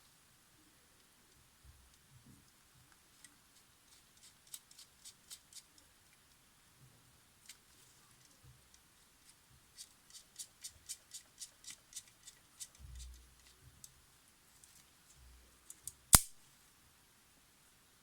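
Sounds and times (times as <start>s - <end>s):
loud sharp click: 16.1s - 16.4s.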